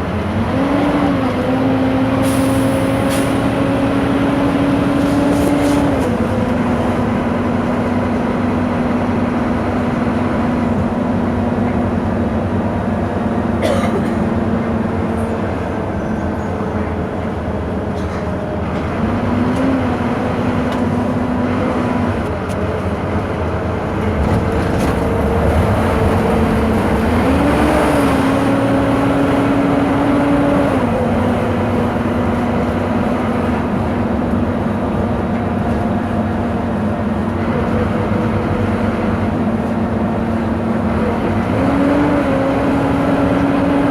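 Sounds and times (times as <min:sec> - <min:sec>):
bus engine running: 0:00.0 - 0:43.9
road and body noise: 0:12.9 - 0:42.1.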